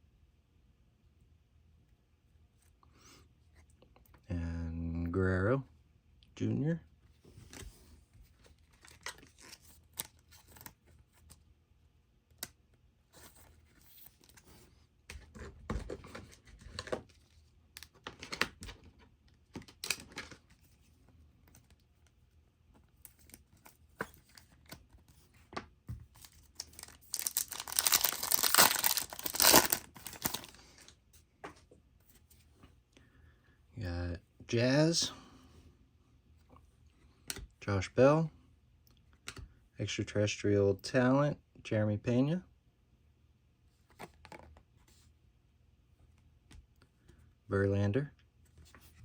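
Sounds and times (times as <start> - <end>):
trading cards rustling and clicking: 13.2 - 20.7, 22.8 - 31.7
wrapper tearing open: 26.6 - 30.6.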